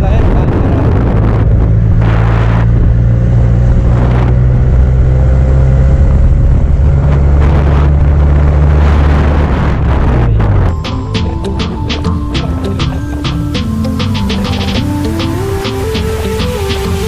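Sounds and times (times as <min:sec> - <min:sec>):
wind on microphone: 0:00.0 - 0:10.8
motorcycle engine running: 0:00.0 - 0:17.0.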